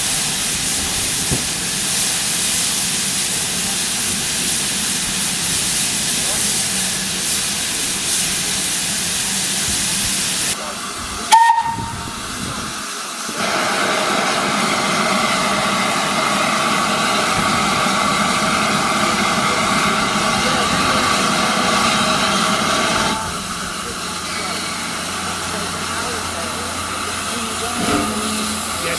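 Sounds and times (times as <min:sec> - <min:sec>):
rush of steam: 0:00.0 - 0:28.9
steam locomotive hissing: 0:00.0 - 0:28.9
sharp whistle toot: 0:11.3 - 0:12.0.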